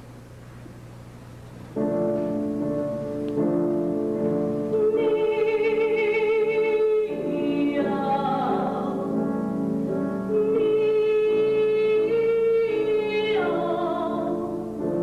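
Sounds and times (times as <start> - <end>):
piano accompaniment: 1.6 - 15.0
woman singing opera: 4.6 - 9.3, 10.3 - 15.0.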